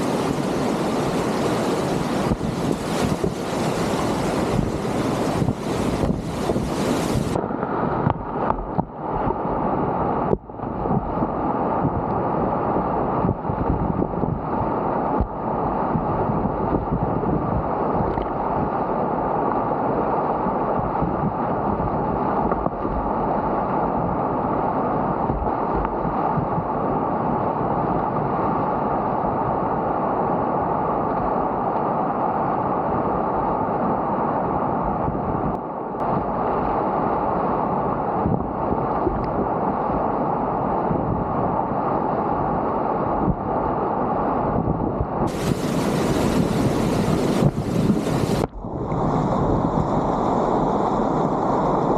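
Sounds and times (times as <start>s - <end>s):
wind noise on microphone: 0.0s - 51.9s
whitewater rapids rushing: 45.3s - 49.2s.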